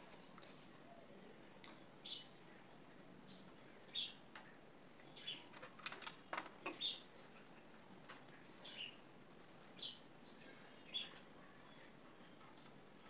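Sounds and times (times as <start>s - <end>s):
small bird chirping: 6.7s - 7.1s, 9.7s - 12.8s.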